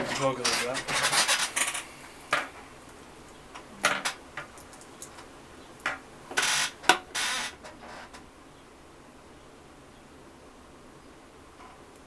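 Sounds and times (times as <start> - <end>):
short scraping noises: 0.0 - 2.0.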